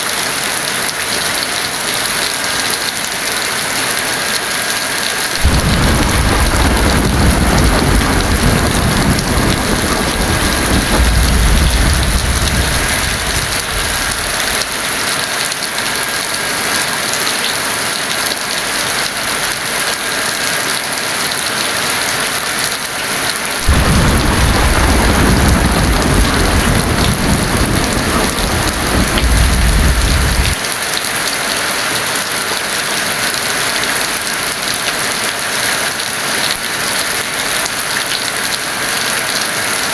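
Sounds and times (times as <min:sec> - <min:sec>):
heavy rain hissing: 0:00.0 - 0:39.9
low thunder rumbles: 0:05.4 - 0:15.0, 0:23.6 - 0:30.6.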